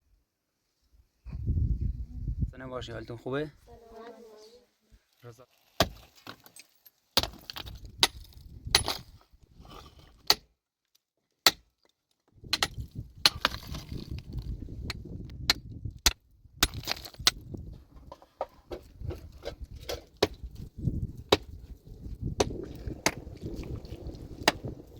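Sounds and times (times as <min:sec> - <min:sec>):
pickaxes striking rock: 0:05.8 - 0:06.6, 0:07.2 - 0:10.5, 0:11.4 - 0:11.7, 0:12.4 - 0:21.6, 0:22.2 - 0:23.8, 0:24.4 - 0:24.8
low rumbling: 0:18.9 - 0:24.9.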